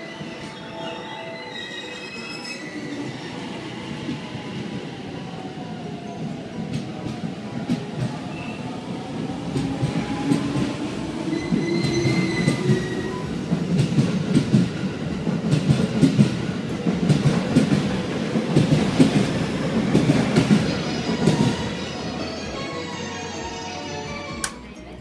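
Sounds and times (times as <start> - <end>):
high squeals: 0.1 - 3.5.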